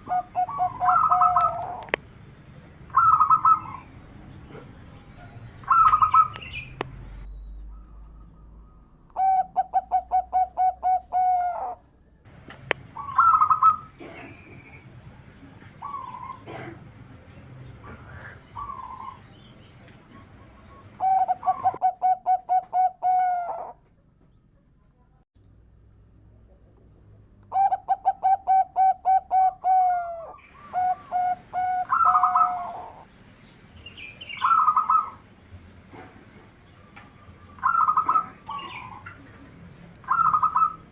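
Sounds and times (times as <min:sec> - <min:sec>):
dove cooing: 0:00.0 - 0:02.0, 0:02.9 - 0:03.9, 0:04.5 - 0:06.7, 0:07.8 - 0:11.9, 0:12.9 - 0:17.0, 0:17.8 - 0:19.2, 0:20.0 - 0:23.8, 0:27.5 - 0:33.1, 0:34.3 - 0:35.2, 0:36.8 - 0:39.4, 0:40.0 - 0:40.9
rapid trilling bird call: 0:00.0 - 0:02.0, 0:02.9 - 0:04.0, 0:05.2 - 0:06.8, 0:12.9 - 0:14.8, 0:18.3 - 0:23.8, 0:27.5 - 0:33.1, 0:33.8 - 0:35.2, 0:36.8 - 0:39.2, 0:40.0 - 0:40.9.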